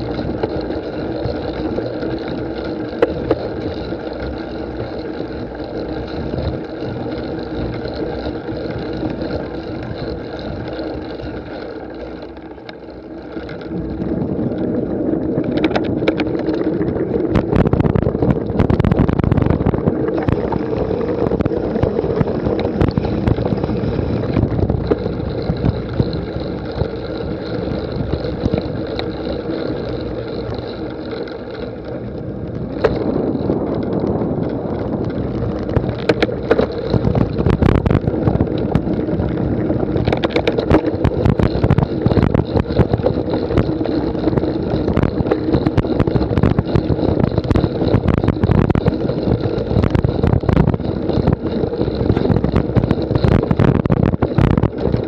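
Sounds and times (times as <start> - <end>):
bike frame and chain rattling: 0.0 - 55.0
bike ridden over rough ground: 0.0 - 55.0
wind rushing over microphone: 13.4 - 55.0.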